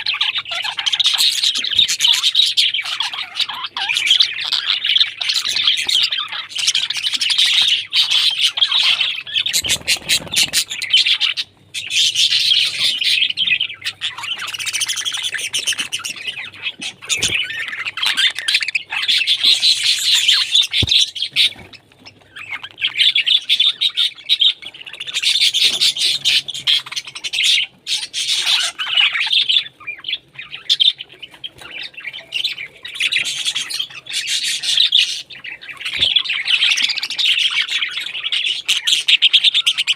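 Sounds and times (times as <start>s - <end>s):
parrots chattering and chirping: 0.0s - 39.9s
shrill parrot squawks: 25.1s - 30.8s.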